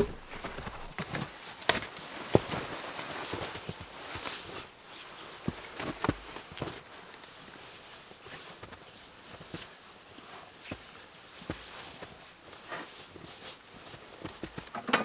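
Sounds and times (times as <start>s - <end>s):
footsteps crunching snow: 0.0s - 1.1s.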